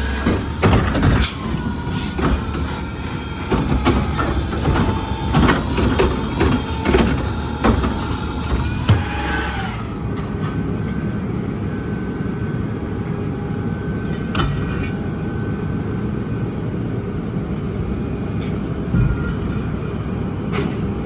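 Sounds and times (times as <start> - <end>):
garbage truck engine running: 0.0 - 11.9.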